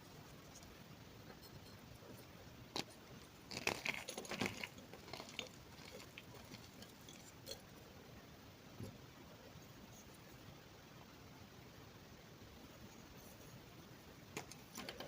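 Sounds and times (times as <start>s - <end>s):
crunchy snack chewing: 2.7s - 7.7s.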